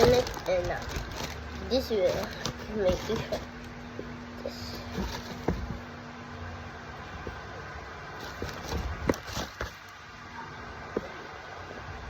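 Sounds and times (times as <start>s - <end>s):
cardboard box knocks and scrapes: 4.8s - 5.9s, 8.2s - 9.8s.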